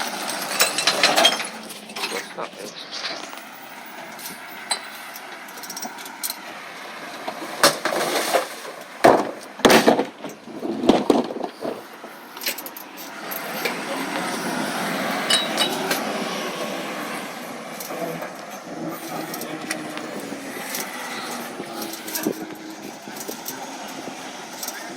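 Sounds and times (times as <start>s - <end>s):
glass recyclables clattering: 0.0s - 6.4s, 15.2s - 16.0s
truck mechanical noise: 0.0s - 24.9s.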